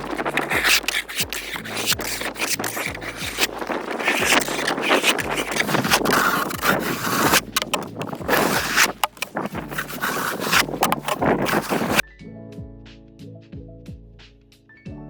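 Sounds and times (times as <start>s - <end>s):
snow shovel scraping snow: 0.0s - 12.0s
music: 0.0s - 15.0s.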